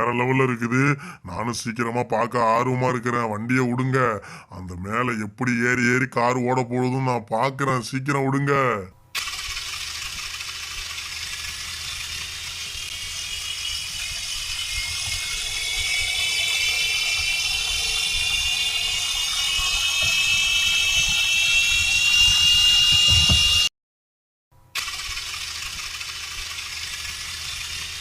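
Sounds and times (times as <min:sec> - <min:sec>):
toy car motor whining: 0:09.1 - 0:23.7, 0:24.7 - 0:28.0
toy car rattling on plastic track: 0:09.2 - 0:18.6, 0:24.8 - 0:28.0.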